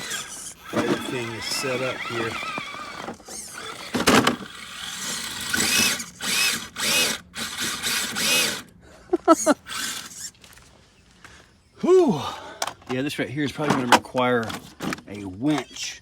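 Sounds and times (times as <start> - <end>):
electric motor whining: 0.0 - 10.6.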